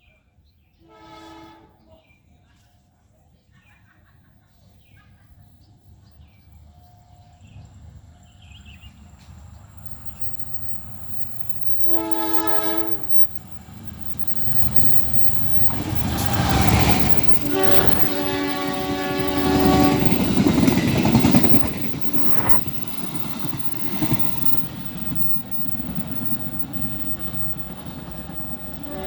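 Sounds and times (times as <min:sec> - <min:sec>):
train air horn blast: 0:00.9 - 0:01.8, 0:11.6 - 0:13.4, 0:14.0 - 0:22.6, 0:28.8 - 0:29.0
diesel locomotive passing: 0:06.5 - 0:29.0.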